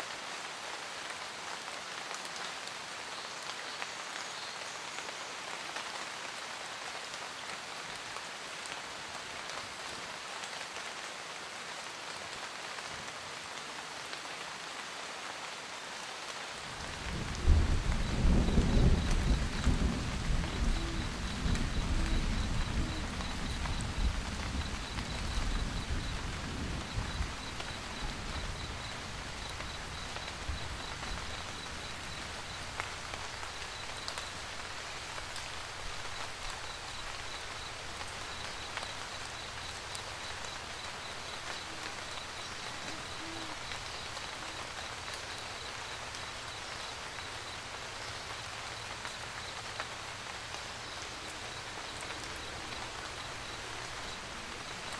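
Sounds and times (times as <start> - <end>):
rain pattering: 0.0 - 54.9
low thunder rumble: 16.8 - 32.8
soft low hoots: 18.4 - 32.2, 40.9 - 44.8.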